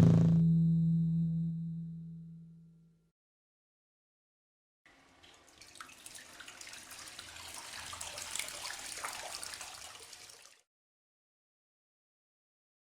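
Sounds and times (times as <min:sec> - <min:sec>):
splashing running water: 0:04.9 - 0:10.6
water drips and splashes: 0:04.9 - 0:10.7.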